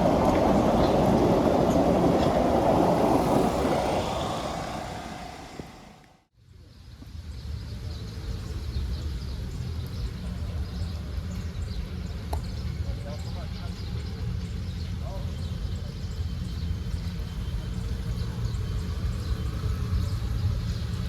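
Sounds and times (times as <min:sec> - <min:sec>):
steam train running: 0:00.0 - 0:06.2.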